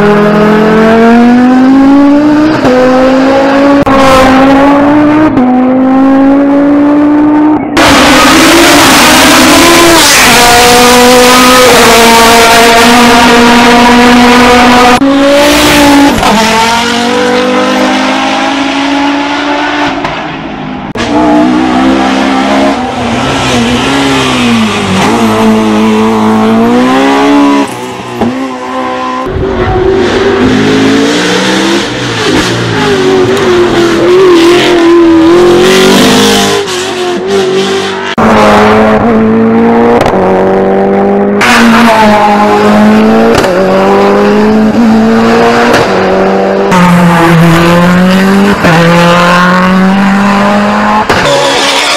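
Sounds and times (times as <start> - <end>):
racing car engines at full throttle: 0.0 - 51.9.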